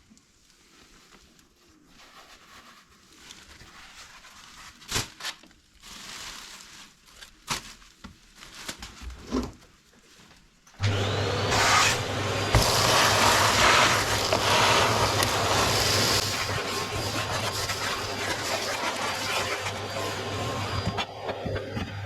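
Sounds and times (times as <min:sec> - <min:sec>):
vacuum cleaner running: 0:10.8 - 0:22.0.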